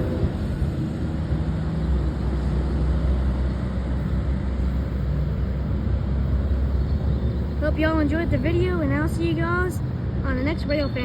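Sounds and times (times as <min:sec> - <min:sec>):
train rumbling past: 0:00.0 - 0:10.6.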